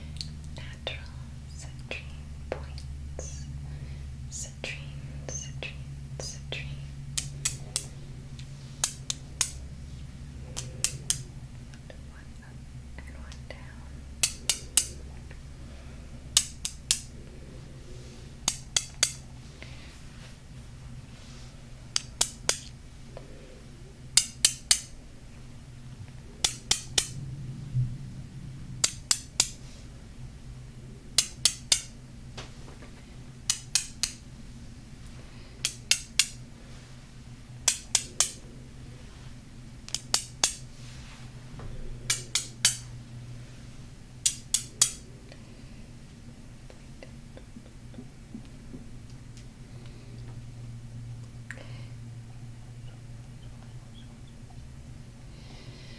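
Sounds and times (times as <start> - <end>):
tapping on crystal: 14.2 - 15.1, 16.3 - 17.1, 18.4 - 19.2, 24.2 - 24.9, 26.4 - 27.2, 31.2 - 31.9, 33.5 - 34.2, 35.6 - 36.4, 37.6 - 38.4, 39.9 - 40.6, 42.1 - 42.9.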